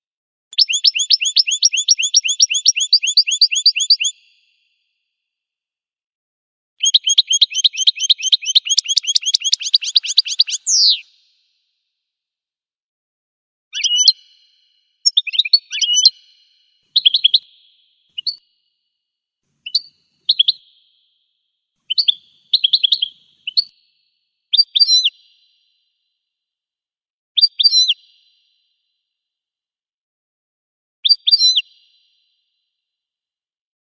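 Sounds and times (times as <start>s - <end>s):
bird song twittering chirps: 0.5s - 4.7s, 6.8s - 11.4s, 13.8s - 18.6s, 19.6s - 25.8s, 27.4s - 28.0s, 31.0s - 32.2s.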